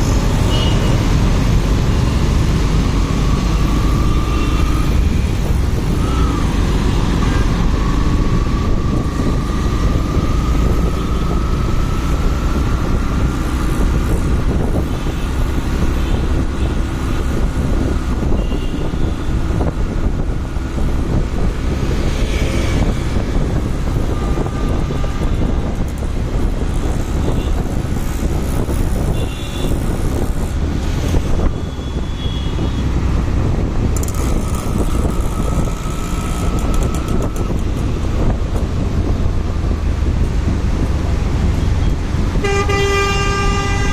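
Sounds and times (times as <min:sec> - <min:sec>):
wind rumble on microphone: 0:00.0 - 0:43.9
motorcycle engine running: 0:33.9 - 0:38.5.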